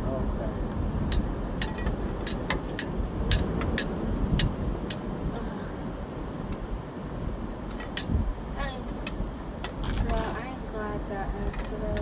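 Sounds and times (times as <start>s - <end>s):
vehicle engines rumbling: 0.0s - 12.0s
tools clicking and clinking: 1.1s - 5.0s.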